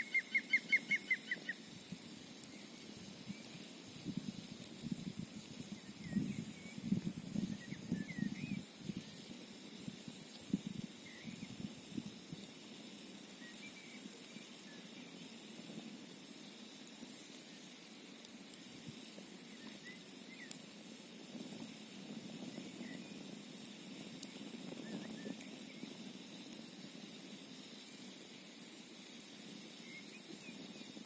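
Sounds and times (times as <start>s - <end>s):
faint squeaky chirps: 0.0s - 1.7s, 5.7s - 9.3s, 19.4s - 20.6s, 29.7s - 31.0s
campfire crackling and popping: 0.0s - 31.0s
flowing water hiss: 0.0s - 31.0s.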